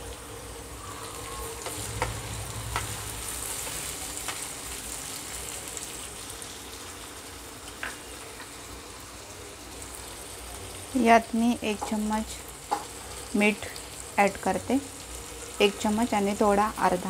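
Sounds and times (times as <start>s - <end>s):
tomatoes sizzling in oil: 0.0s - 17.0s
spatula tapping the pan: 1.6s - 3.0s, 12.7s - 12.9s.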